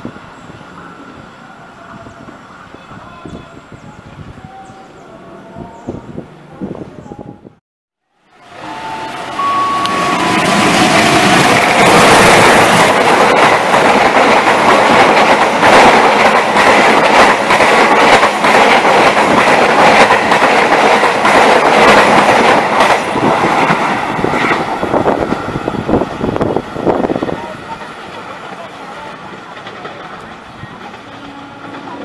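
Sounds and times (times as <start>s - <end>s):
train passing at speed: 0.0s - 7.5s, 8.1s - 32.0s.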